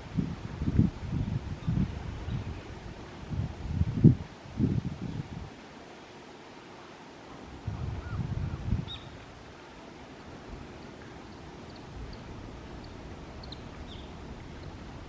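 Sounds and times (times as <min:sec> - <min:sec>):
wind buffeting microphone: 0:00.0 - 0:05.5, 0:07.4 - 0:09.5, 0:10.2 - 0:15.0
faint bird chirps: 0:08.8 - 0:09.2, 0:11.3 - 0:14.8.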